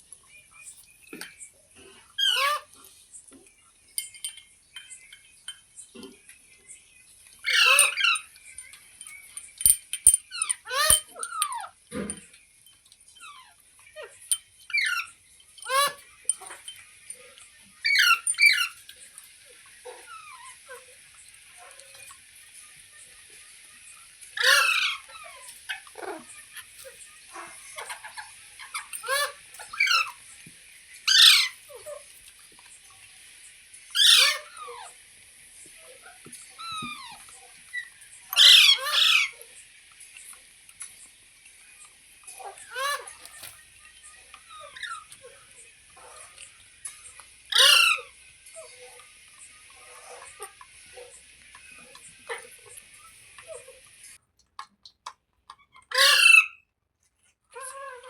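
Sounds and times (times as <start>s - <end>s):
parrot squawking: 1.9s - 3.0s, 7.4s - 9.4s, 10.3s - 12.1s, 13.1s - 22.2s, 22.9s - 30.3s, 31.0s - 32.1s, 33.9s - 35.0s, 35.8s - 39.5s, 42.2s - 54.2s, 55.6s - 56.6s, 57.5s - 58.0s
parrot short quieter calls: 24.4s - 26.3s, 31.1s - 31.6s, 38.4s - 39.4s, 47.5s - 48.1s, 55.9s - 56.6s
faint clicks: 39.9s - 42.4s.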